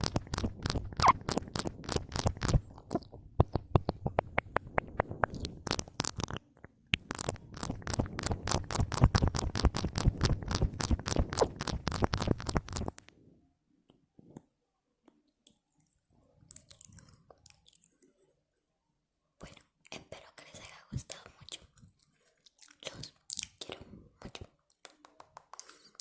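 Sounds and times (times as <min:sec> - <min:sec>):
mouth clicking and smacking: 0:00.0 - 0:13.1, 0:16.5 - 0:17.9, 0:22.5 - 0:26.0.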